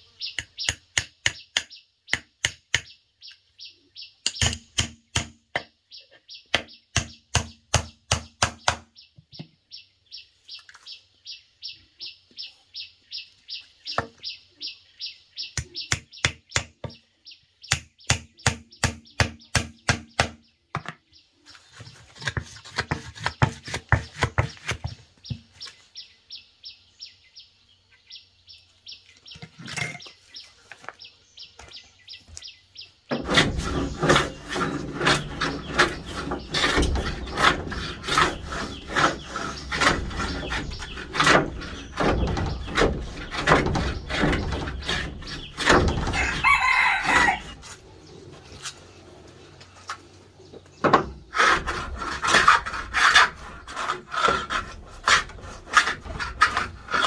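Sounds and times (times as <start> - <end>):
birds or insects chirping: 0.0 - 57.0
sharp knocks on wood: 6.5 - 9.5, 17.7 - 21.0
rasping scraping: 21.5 - 25.0, 33.1 - 50.3, 50.9 - 57.0.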